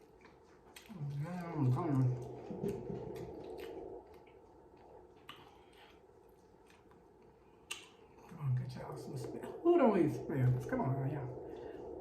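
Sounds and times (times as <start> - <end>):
wet chewing sounds: 0.0 - 8.4
faint mouth clicks: 7.6 - 8.0.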